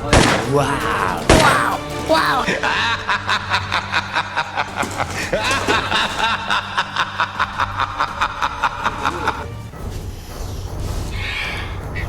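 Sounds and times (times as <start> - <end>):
person snickering: 2.4 - 9.5.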